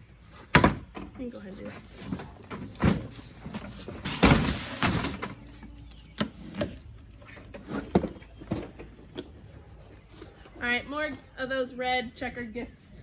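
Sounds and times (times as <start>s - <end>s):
cardboard scraping and rustling: 0.2s - 5.4s
cardboard packaging knocks and thuds: 0.4s - 1.0s.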